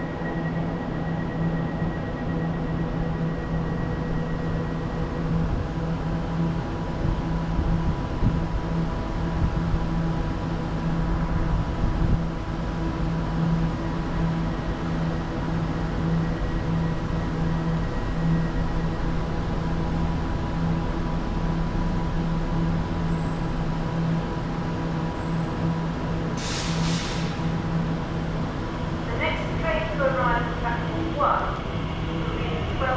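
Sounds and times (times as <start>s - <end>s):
electric train humming: 0.0s - 32.9s
air hiss: 26.4s - 27.5s.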